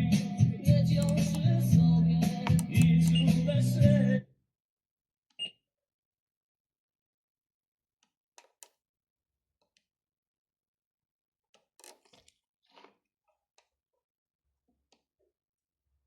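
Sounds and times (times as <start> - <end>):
faint clicks: 1.0 - 1.5.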